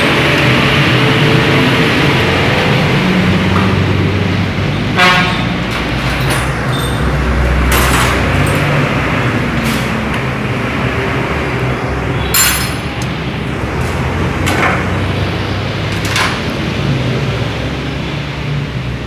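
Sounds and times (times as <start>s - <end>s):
metallic clinks and knocks: 5.7s - 10.1s, 12.4s - 13.2s.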